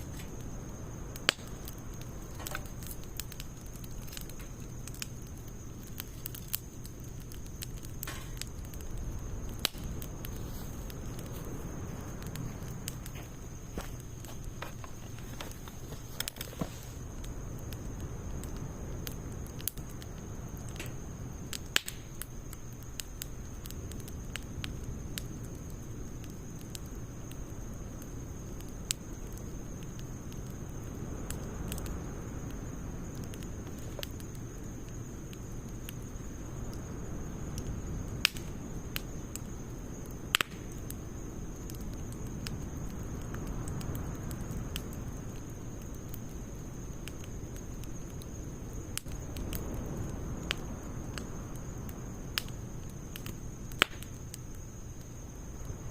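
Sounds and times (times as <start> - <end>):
fire pops: 0.0 - 55.9
wood fire crackling: 0.0 - 55.9.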